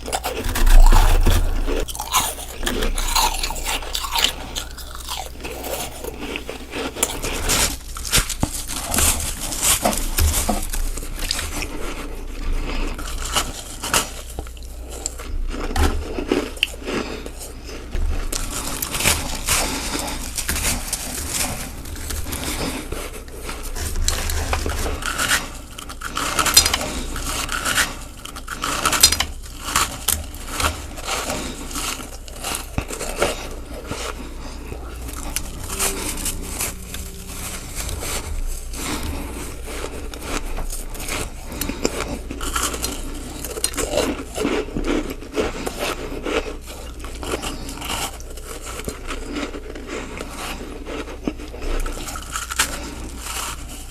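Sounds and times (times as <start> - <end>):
chewing ice crunches: 0.0 - 10.0, 23.8 - 33.6, 41.2 - 53.8.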